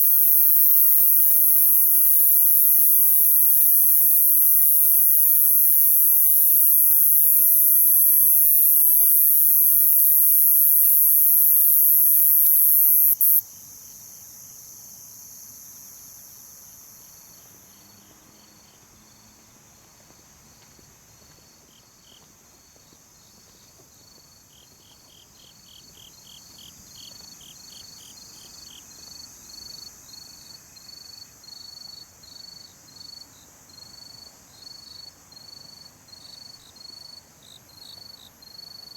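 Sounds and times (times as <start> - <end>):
high-pitched insect drone: 0.0 - 13.4
crickets chirping: 0.0 - 18.8, 22.8 - 38.9.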